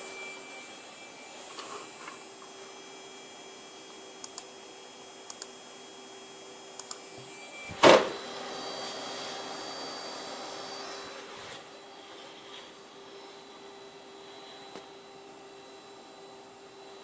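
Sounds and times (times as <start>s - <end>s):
computer whining hum: 0.0s - 17.0s
hissing whine: 0.0s - 17.0s.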